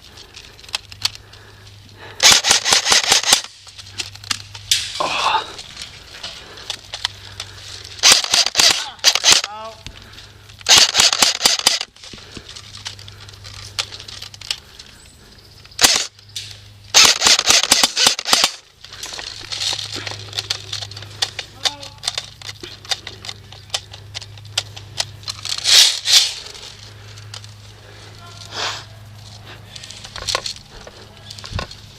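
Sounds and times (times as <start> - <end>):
airsoft guns firing: 2.2 - 3.5, 8.0 - 9.6, 10.7 - 11.9, 15.8 - 16.1, 16.9 - 18.6.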